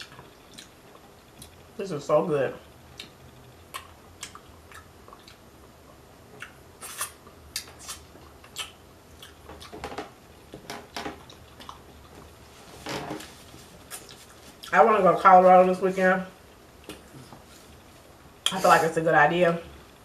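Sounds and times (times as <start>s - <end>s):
person chewing: 0.0s - 1.6s, 2.9s - 5.5s, 6.4s - 9.8s, 11.2s - 12.2s, 13.8s - 14.7s
mouth clicks and smacks: 2.9s - 5.4s, 6.4s - 10.0s.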